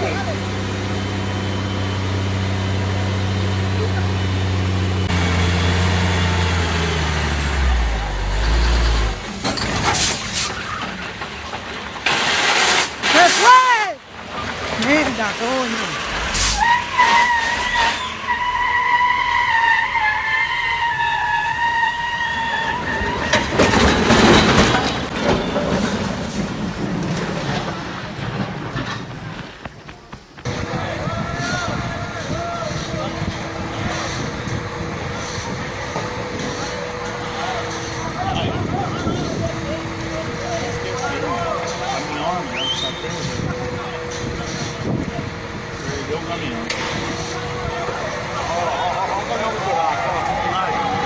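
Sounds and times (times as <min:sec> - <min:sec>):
heavy diesel engine running: 0:00.0 - 0:13.3, 0:22.3 - 0:51.0
loud crashing rumble: 0:00.0 - 0:18.3, 0:22.6 - 0:36.4
shrill metallic squeal: 0:16.4 - 0:25.7.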